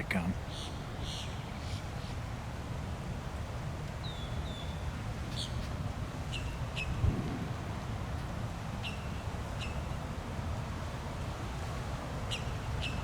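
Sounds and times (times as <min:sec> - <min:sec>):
steady low rumble: 0:07.0 - 0:08.6.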